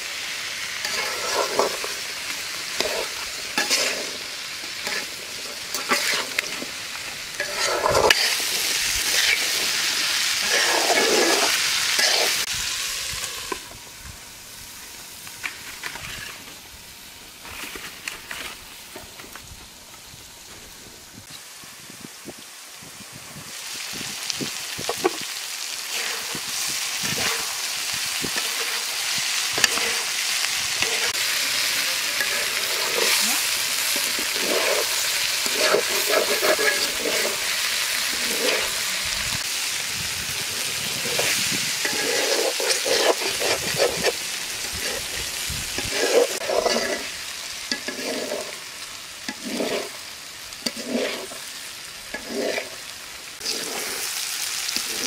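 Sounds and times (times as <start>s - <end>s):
okra sizzling in hot oil: 0.0s - 55.0s
spatula scraping a pan: 0.8s - 12.5s, 15.8s - 16.5s, 25.9s - 38.8s, 40.8s - 55.0s.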